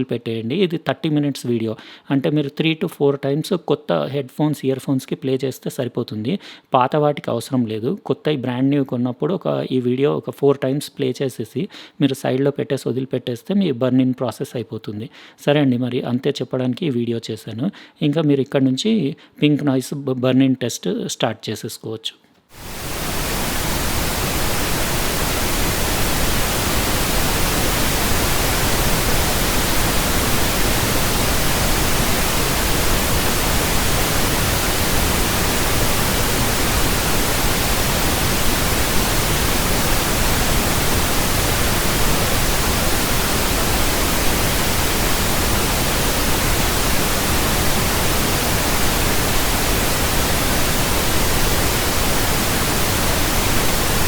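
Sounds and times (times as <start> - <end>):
pink noise hiss: 22.5 - 54.0.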